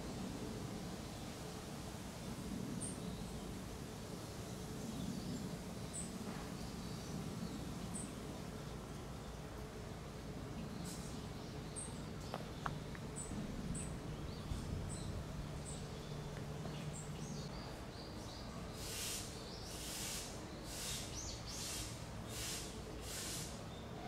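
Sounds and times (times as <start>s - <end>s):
harsh hiss-like bird calls: 0.0s - 9.6s, 10.2s - 24.0s
faint low hum: 0.0s - 18.7s
bird chirping: 10.6s - 23.9s.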